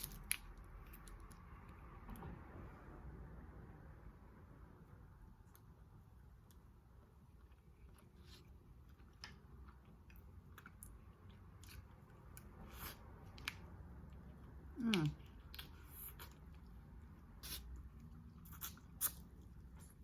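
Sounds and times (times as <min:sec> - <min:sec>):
chewing and biting seafood: 0:07.8 - 0:20.0.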